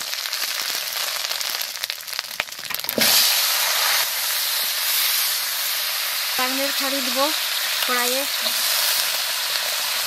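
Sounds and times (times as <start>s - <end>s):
food sizzling in hot oil: 0.0s - 10.0s
spatula scraping pan: 2.9s - 4.2s.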